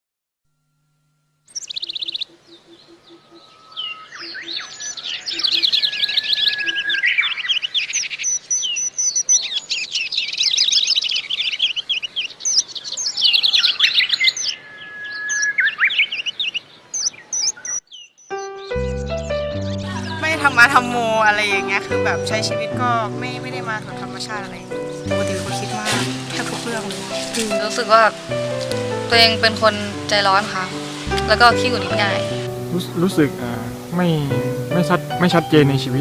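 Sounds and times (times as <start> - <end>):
birds chirping and twittering: 1.5 - 36.0.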